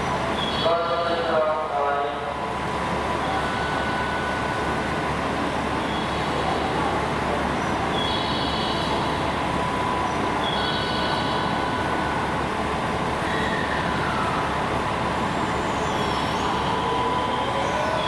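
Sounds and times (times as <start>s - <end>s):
train rumbling and rolling: 0.0s - 18.0s.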